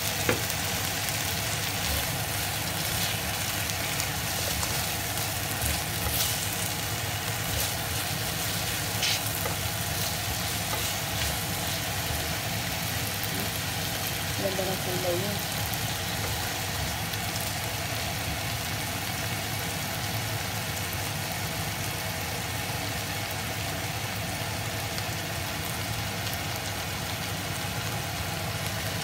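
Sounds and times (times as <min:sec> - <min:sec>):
shrimps sizzling in oil: 0:00.0 - 0:29.0
spatula scraping and tapping: 0:07.4 - 0:11.8.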